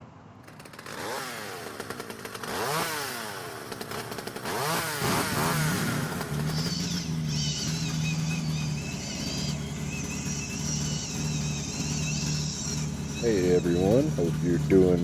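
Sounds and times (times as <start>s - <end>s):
small motor revving: 0.6s - 15.0s
steady low hum: 5.9s - 15.0s.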